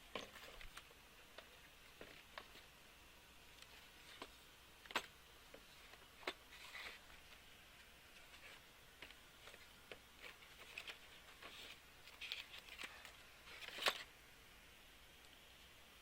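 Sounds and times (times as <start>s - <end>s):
packaging rustling: 8.1s - 14.1s.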